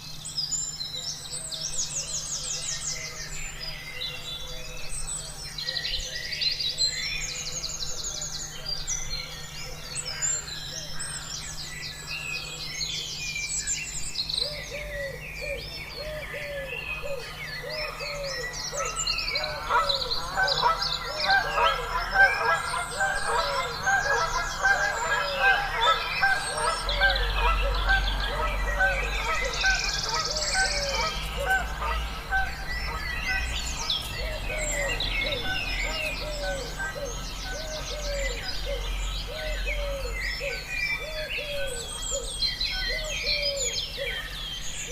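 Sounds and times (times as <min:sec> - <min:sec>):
birds chirping and trilling: 0:00.0 - 0:44.9
low honking bird call: 0:14.6 - 0:42.0.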